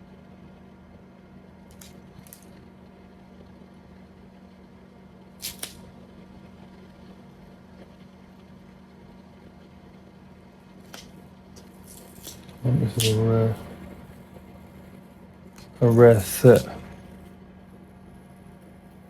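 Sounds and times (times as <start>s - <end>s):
steady low hum: 0.0s - 19.0s
plastic wrap crinkling: 11.8s - 13.7s.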